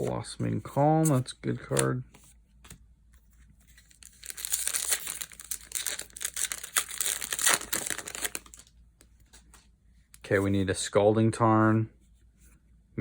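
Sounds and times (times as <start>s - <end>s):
foil wrapper tearing and crinkling: 3.9s - 8.7s.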